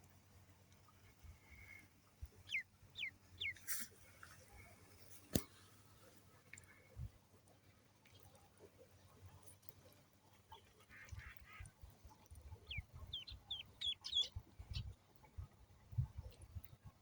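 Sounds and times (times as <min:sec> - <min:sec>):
ducklings peeping: 0:02.4 - 0:03.6, 0:12.6 - 0:14.8.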